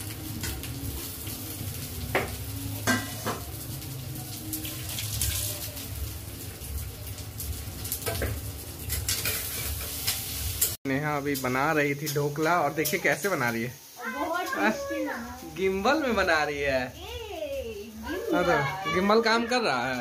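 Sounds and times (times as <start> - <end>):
food sizzling in oil: 0.0 - 20.0
metal utensils clinking on pan: 2.1 - 3.5, 7.9 - 13.5.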